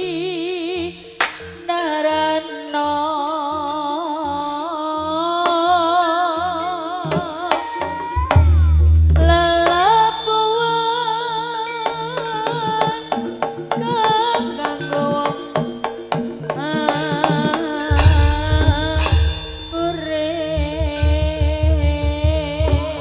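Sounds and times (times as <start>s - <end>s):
wavering sliding melody: 5.6s - 23.0s
steady drone tones: 12.4s - 23.0s
deep booms: 17.9s - 22.9s.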